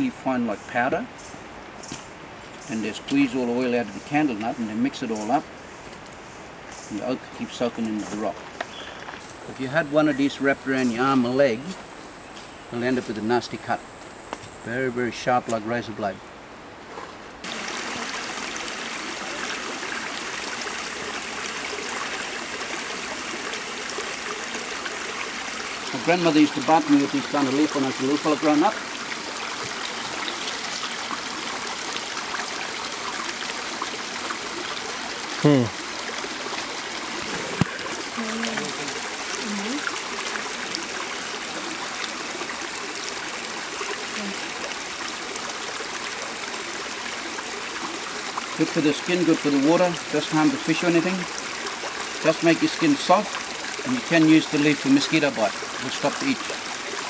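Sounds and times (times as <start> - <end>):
creek water flowing over rocks: 0.0 - 57.0
stream rushing: 1.0 - 57.0
high-pitched insect drone: 9.2 - 15.0, 20.8 - 25.9
faint voice: 35.4 - 35.7.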